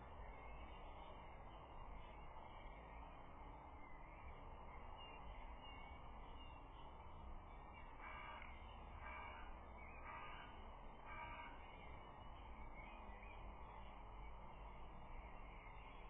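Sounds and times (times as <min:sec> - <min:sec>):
faint bird calls: 0:07.7 - 0:16.0.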